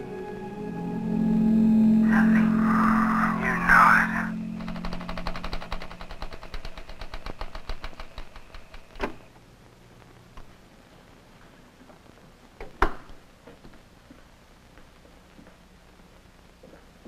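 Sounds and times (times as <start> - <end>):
rapid clicking: 4.6 - 9.1.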